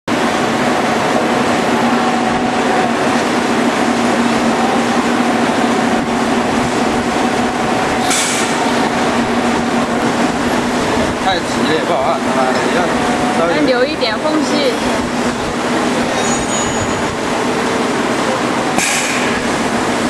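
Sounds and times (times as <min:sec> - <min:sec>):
welding machine electrical hum: 0:00.1 - 0:20.0
brief hiss: 0:08.1 - 0:08.6.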